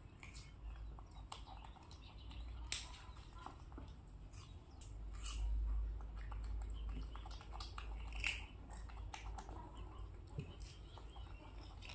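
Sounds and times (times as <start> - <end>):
crisp chewing: 0.0 - 11.9.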